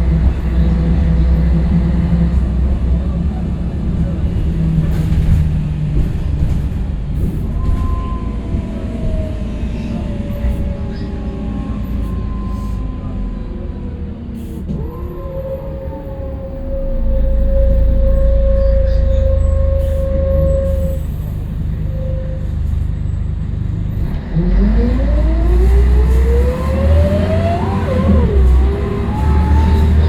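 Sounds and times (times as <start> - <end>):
bus engine rumble: 0.0 - 30.0
rising engine whine: 7.6 - 22.4, 23.7 - 30.0.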